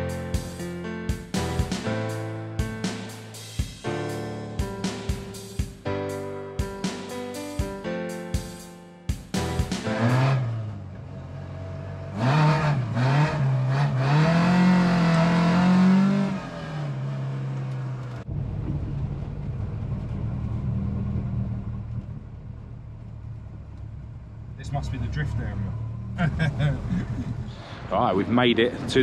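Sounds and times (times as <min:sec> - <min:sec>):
road noise drone: 0:00.0 - 0:08.6, 0:09.2 - 0:29.0
music: 0:00.0 - 0:10.6
car engine accelerating: 0:09.4 - 0:29.0.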